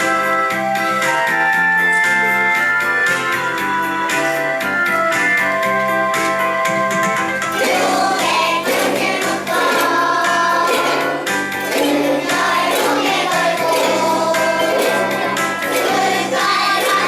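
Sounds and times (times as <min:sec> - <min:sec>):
instrumental accompaniment with bass: 0:00.0 - 0:17.0
children singing: 0:07.5 - 0:17.0.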